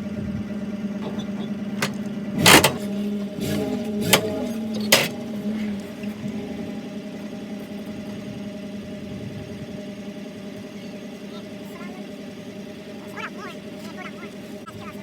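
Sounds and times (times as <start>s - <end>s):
vehicle engine running: 0.0s - 15.0s
loud metallic clanks: 1.0s - 5.2s.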